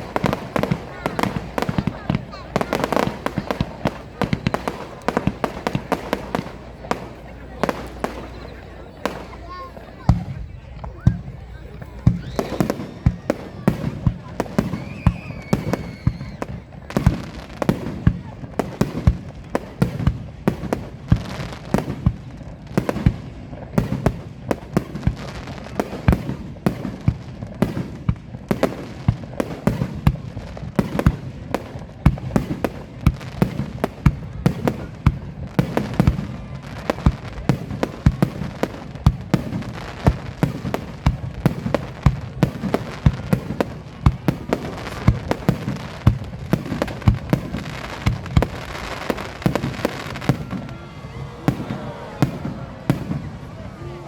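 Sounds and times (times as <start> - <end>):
fireworks bangs: 0.0 - 54.0.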